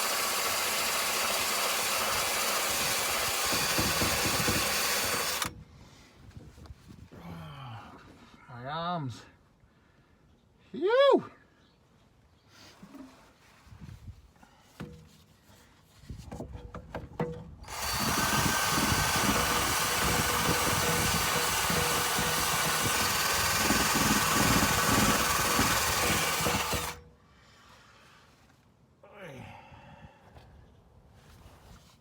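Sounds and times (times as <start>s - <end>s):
electric drill stripping rust: 0.0s - 5.5s, 17.6s - 27.1s.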